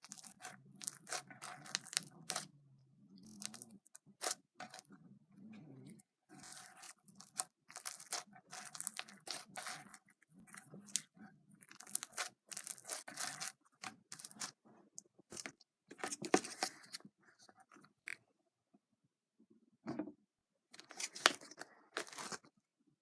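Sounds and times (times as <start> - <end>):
slime squished by hand: 0.0 - 2.5, 6.3 - 14.6.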